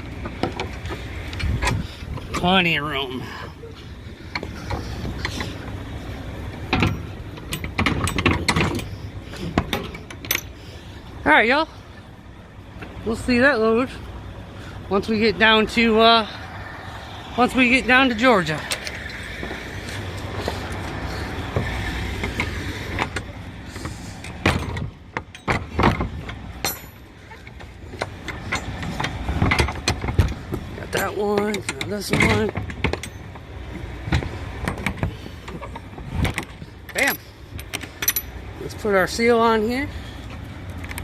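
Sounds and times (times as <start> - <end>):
trailer doors knocking and clanking: 6.5 - 10.6, 17.5 - 38.5.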